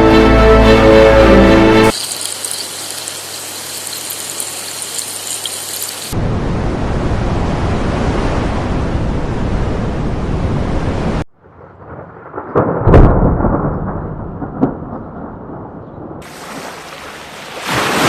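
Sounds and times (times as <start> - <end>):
steady rain patter: 1.9 - 6.2.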